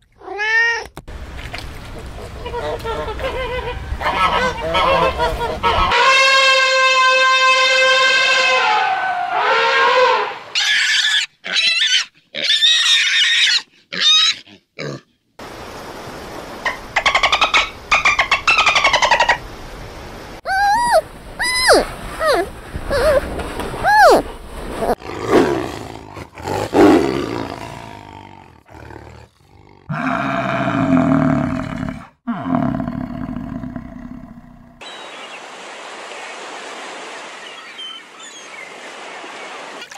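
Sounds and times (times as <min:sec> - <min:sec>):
pig squealing: 0:10.5 - 0:15.0, 0:20.5 - 0:23.2, 0:23.8 - 0:24.2
elephant trumpeting: 0:20.5 - 0:23.2
tiger roaring: 0:25.0 - 0:34.8.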